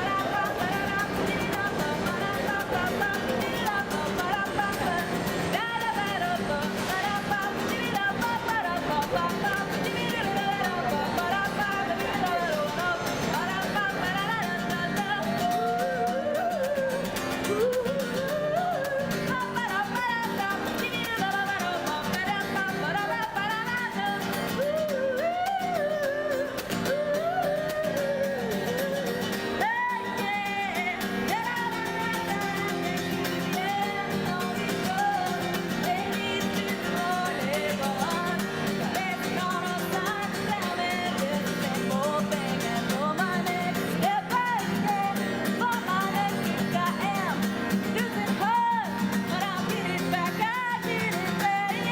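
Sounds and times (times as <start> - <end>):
acoustic guitar: 0.0 - 51.9
woman singing: 0.0 - 51.9.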